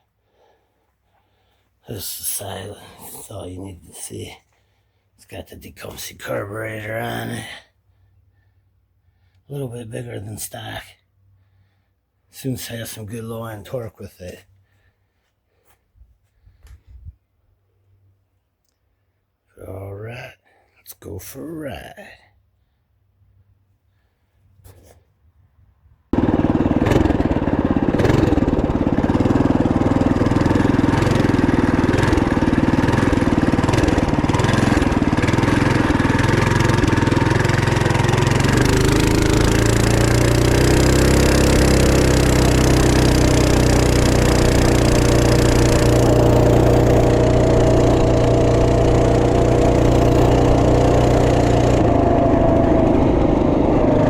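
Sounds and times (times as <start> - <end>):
minibike engine running: 26.2 - 54.0.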